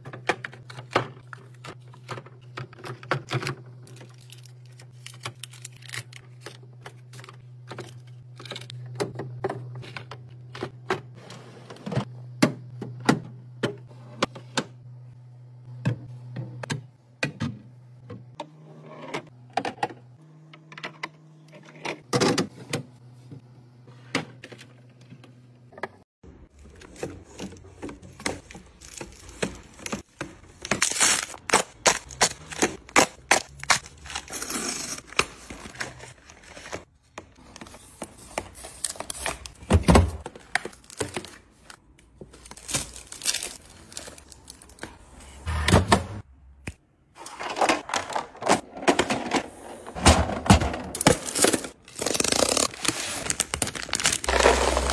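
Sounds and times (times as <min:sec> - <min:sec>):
packaging crinkling: 0:03.9 - 0:06.6, 0:40.4 - 0:44.9, 0:51.0 - 0:54.9.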